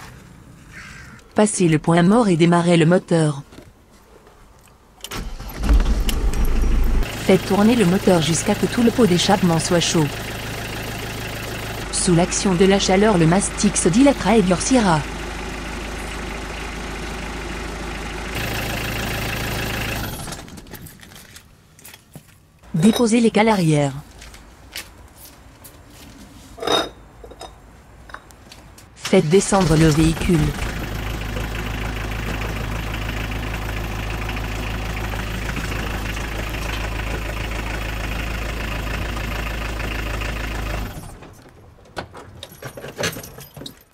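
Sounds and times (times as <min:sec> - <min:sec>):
car engine idling: 0:05.1 - 0:21.0, 0:29.5 - 0:41.3.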